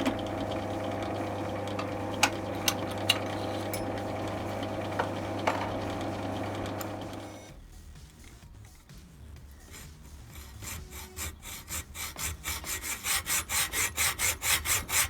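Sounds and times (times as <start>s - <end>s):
hand saw strokes: 9.6s - 15.0s.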